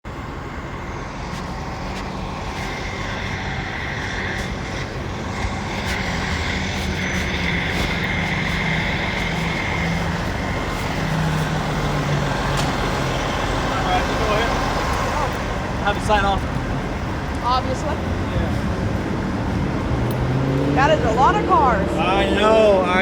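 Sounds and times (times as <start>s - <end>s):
engine drone: 0.0s - 23.0s.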